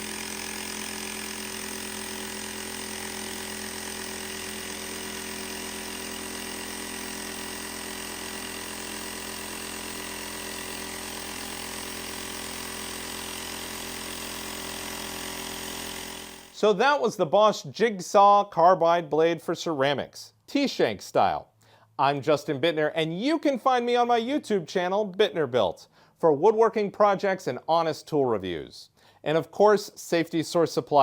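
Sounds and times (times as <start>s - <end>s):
jigsaw running: 0.0s - 16.7s.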